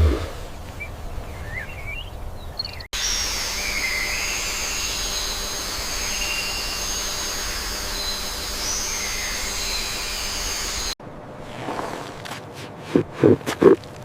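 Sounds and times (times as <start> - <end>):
bird chirps: 0.8 - 11.0
high sustained whistling tones: 3.0 - 11.0
steady hiss: 3.0 - 11.0.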